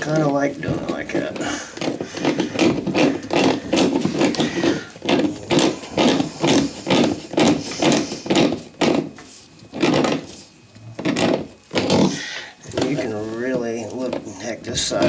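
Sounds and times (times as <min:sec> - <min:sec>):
hand wrench tightening nuts: 0:00.0 - 0:09.1.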